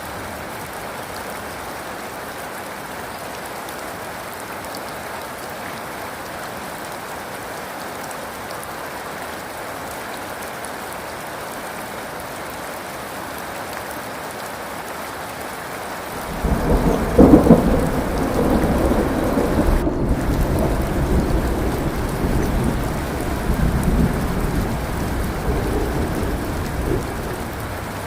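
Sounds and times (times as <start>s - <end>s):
heavy rain hissing: 15.9s - 28.0s
raindrop ticks: 16.1s - 28.0s.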